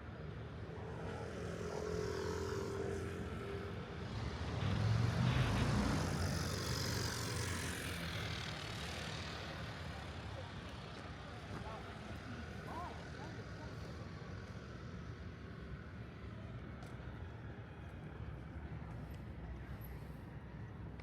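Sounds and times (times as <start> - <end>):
city hum: 0.0 - 21.0
vehicle passing by: 1.3 - 9.6.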